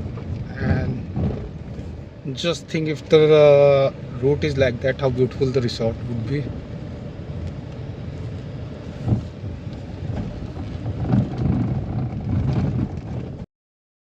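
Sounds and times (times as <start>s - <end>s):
wind on microphone: 0.0s - 2.2s, 8.2s - 13.4s
vehicle engine and road rumble: 0.0s - 13.5s.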